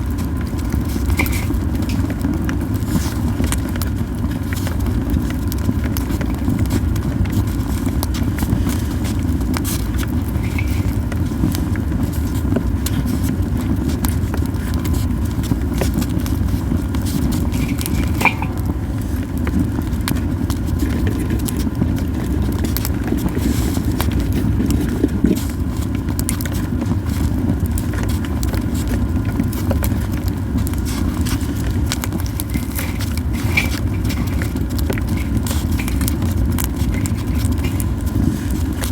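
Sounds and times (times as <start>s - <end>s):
campfire crackling and popping: 0.0s - 38.9s
steady low rumble: 14.1s - 22.0s.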